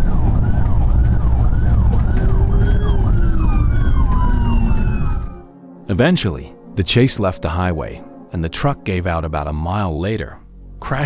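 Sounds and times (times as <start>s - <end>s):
vehicle engine and road rumble: 0.0s - 5.5s
police siren yelping: 0.0s - 9.1s
tone sliding down in pitch: 1.8s - 9.6s.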